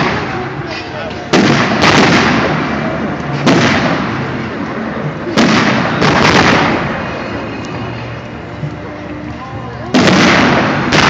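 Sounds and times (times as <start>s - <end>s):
firework shells bursting: 0.0s - 4.5s, 5.3s - 8.3s.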